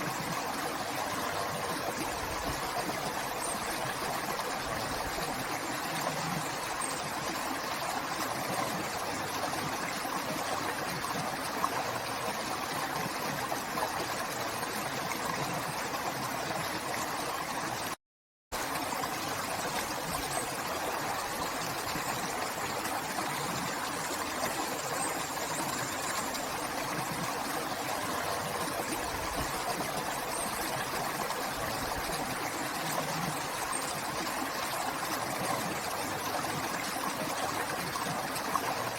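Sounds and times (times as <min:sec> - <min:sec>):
river flowing: 0:18.6 - 0:38.9.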